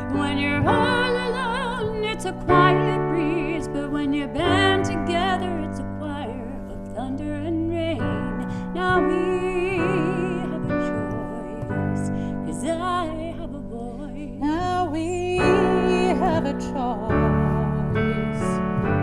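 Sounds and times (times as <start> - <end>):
women singing a slow ballad: 0.0 - 18.6
piano accompaniment: 0.0 - 19.0.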